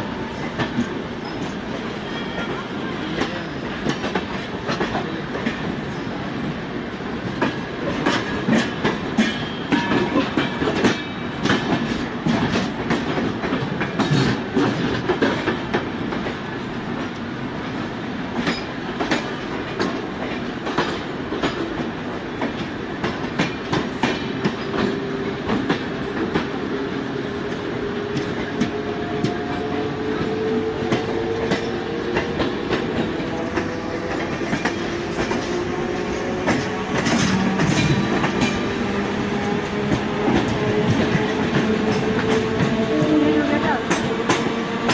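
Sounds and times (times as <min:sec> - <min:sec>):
train rolling rumble: 0:00.0 - 0:44.9.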